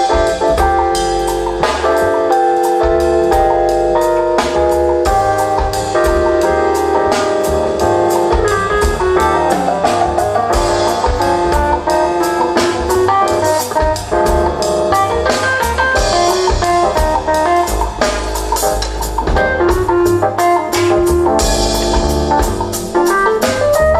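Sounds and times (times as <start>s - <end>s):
bass notes: 0.0s - 23.9s
steady drum beat: 0.0s - 23.9s.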